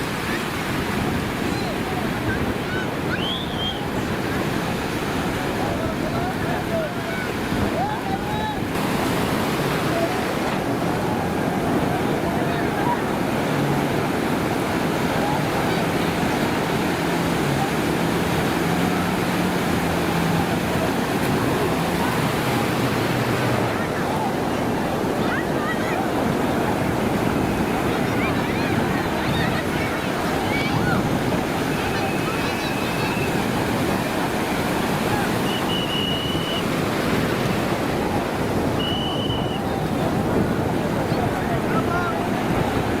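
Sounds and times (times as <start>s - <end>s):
surf washing on a beach: 0.0s - 43.0s
wind rumbling on microphone: 0.0s - 43.0s
engine hum: 8.8s - 31.4s
high steady whistle: 35.4s - 36.6s, 38.8s - 39.6s.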